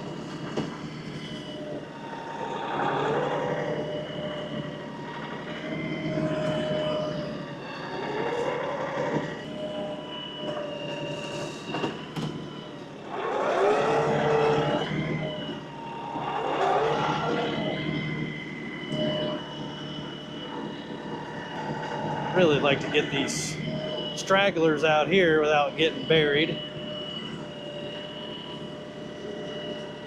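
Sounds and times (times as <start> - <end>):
steady whine: 0.0 - 30.0
tractor diesel engine running: 20.4 - 28.5.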